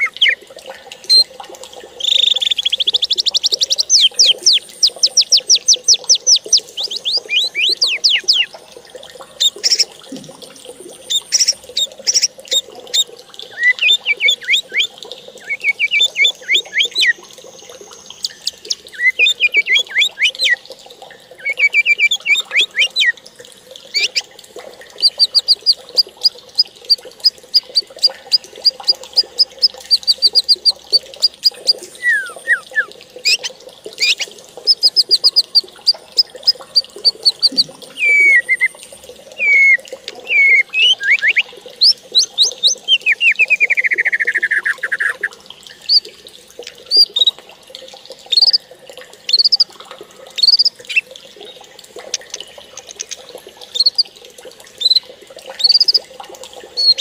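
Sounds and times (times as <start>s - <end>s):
songbird singing: 0.0s - 0.4s, 2.0s - 8.6s, 9.4s - 9.9s, 11.0s - 17.2s, 18.0s - 20.6s, 21.4s - 23.1s, 25.0s - 38.7s, 39.4s - 45.3s, 48.3s - 48.6s, 49.3s - 49.6s, 50.4s - 54.0s, 55.6s - 56.0s, 56.8s - 57.0s.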